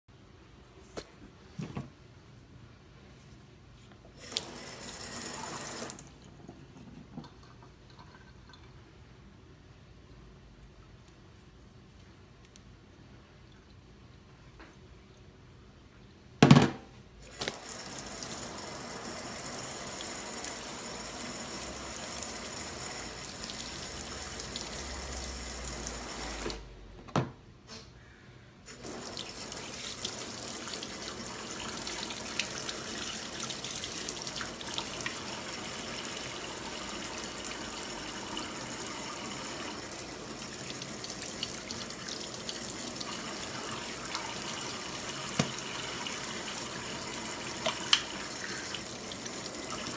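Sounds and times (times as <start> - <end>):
click: 12.4 - 12.7.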